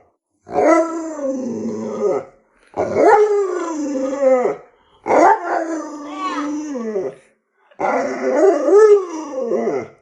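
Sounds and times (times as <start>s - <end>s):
dog howling: 0.5s - 7.2s, 7.8s - 10.0s.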